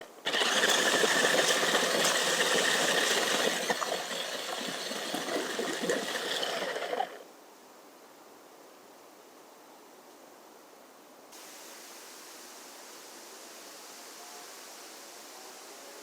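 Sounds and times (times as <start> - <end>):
toy car motor whirring and rattling: 0.0 - 7.2.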